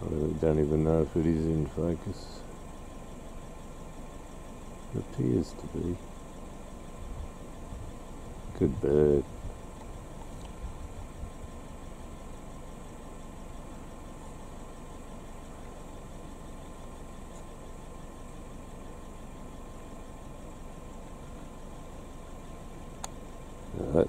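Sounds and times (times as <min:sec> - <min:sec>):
car engine idling: 0:00.0 - 0:24.0
faint high whine: 0:00.0 - 0:24.0.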